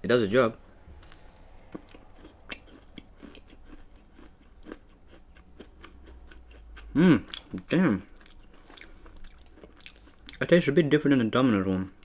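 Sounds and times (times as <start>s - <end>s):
person chewing cookie: 1.0s - 10.4s.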